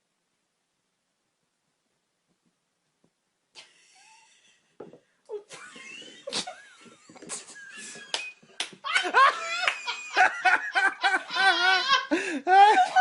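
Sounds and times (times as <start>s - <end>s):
person laughing hard: 5.4s - 13.0s.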